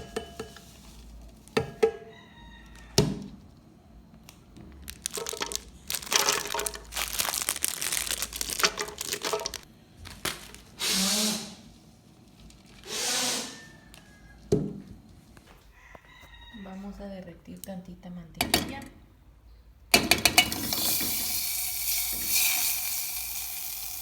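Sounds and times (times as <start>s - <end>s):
plastic packaging crinkling: 4.6s - 10.8s
short bursts of noise: 12.8s - 13.7s.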